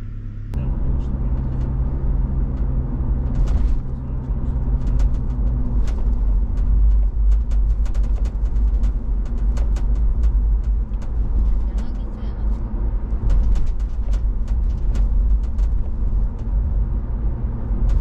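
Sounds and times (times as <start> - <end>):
car engine and road drone: 0.0 - 18.0.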